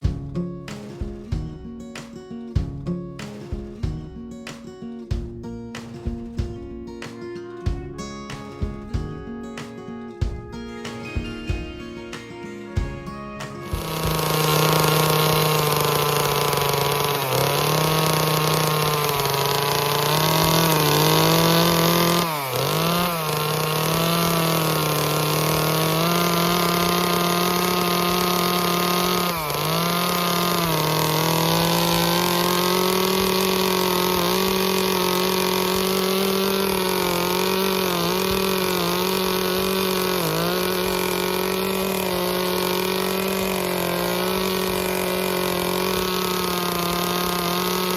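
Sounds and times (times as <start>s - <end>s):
chainsaw carving wood: 13.5s - 47.9s.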